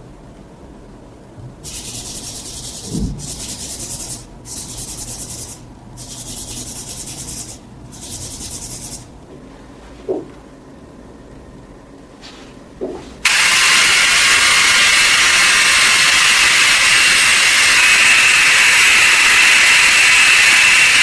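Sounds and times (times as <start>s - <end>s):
high hissing bursts: 1.6s - 9.1s, 13.2s - 21.0s
low thump: 2.9s - 3.2s.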